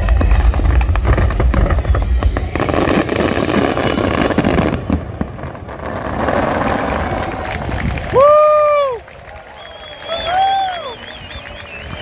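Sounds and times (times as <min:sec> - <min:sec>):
fireworks booming: 0:00.0 - 0:08.7
fireworks crackling: 0:00.0 - 0:12.0.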